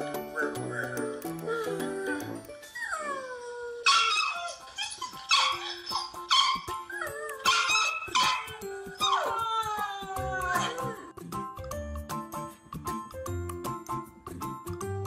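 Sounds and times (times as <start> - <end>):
faint background music: 0.0 - 15.0
dog yipping: 0.3 - 1.2, 2.6 - 10.9
dog howling: 0.4 - 11.0.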